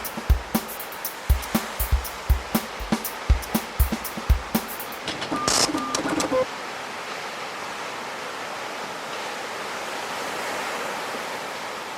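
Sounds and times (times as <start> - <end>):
background music with guitar and drums: 0.0 - 5.0
ocean waves breaking: 0.0 - 7.8.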